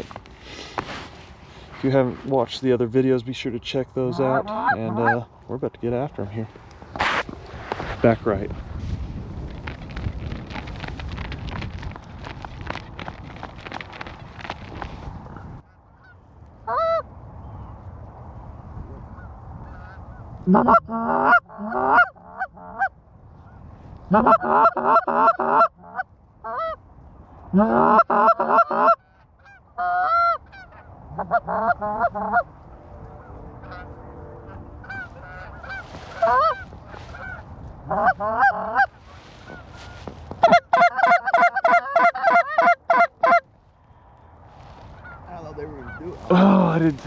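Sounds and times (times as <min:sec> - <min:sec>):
low wind rumble: 0:00.0 - 0:47.0
goose honking: 0:04.0 - 0:05.3, 0:19.7 - 0:22.9, 0:24.1 - 0:26.8, 0:27.5 - 0:43.5, 0:44.9 - 0:46.9.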